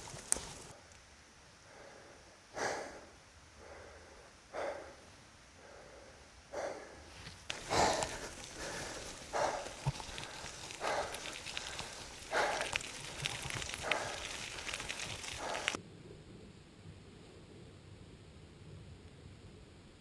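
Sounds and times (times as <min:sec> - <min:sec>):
person breathing hard: 0:01.6 - 0:15.8.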